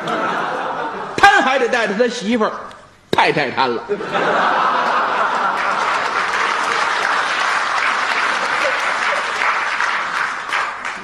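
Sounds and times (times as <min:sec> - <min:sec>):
audience laughter: 0:00.0 - 0:01.2, 0:03.8 - 0:10.4
audience applauding: 0:04.6 - 0:11.0.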